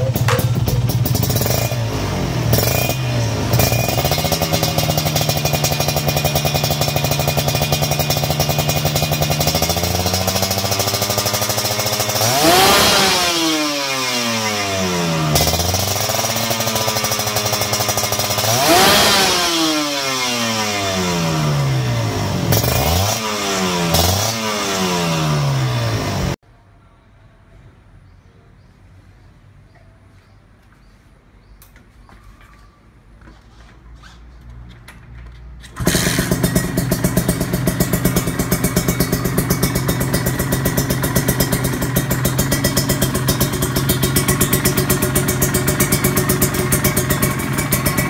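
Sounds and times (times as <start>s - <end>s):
motorcycle engine idling and revving: 0.0s - 26.4s, 33.2s - 48.0s.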